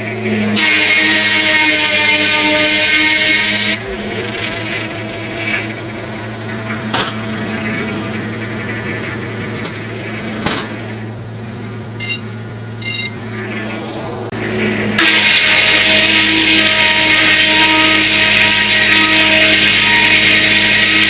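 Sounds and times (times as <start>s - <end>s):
brief squeaks: 11.8s - 13.2s
saw blade cutting log: 11.9s - 13.2s.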